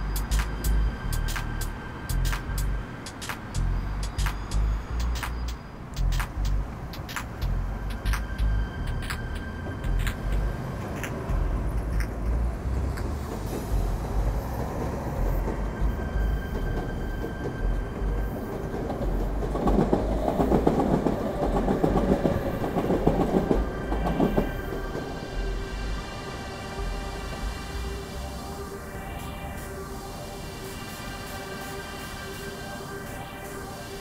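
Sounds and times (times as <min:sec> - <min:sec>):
train rumbling over tracks: 0:00.0 - 0:34.0.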